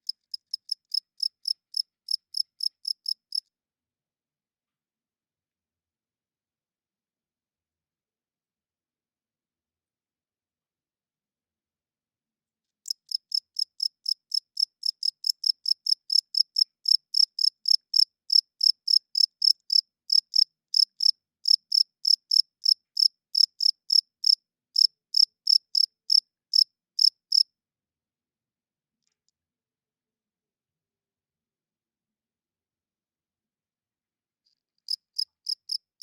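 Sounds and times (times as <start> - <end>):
cricket chirping: 12.9 - 27.4.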